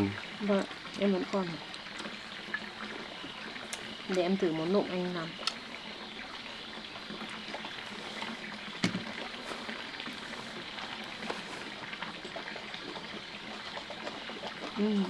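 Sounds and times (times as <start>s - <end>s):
water trickling: 0.0s - 15.0s.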